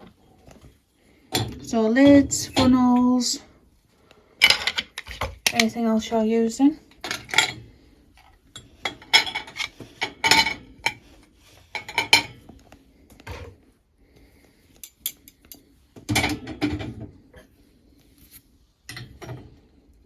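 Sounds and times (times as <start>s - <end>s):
utensils clattering in dishwasher: 1.3s - 3.4s, 4.4s - 5.7s, 7.0s - 7.6s, 8.6s - 11.0s, 11.8s - 12.4s, 14.8s - 17.0s.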